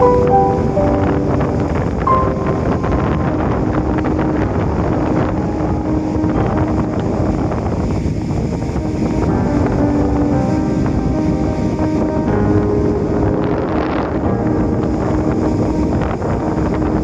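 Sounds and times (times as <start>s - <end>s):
faint background music: 0.0s - 17.0s
wind buffeting microphone: 0.0s - 17.0s.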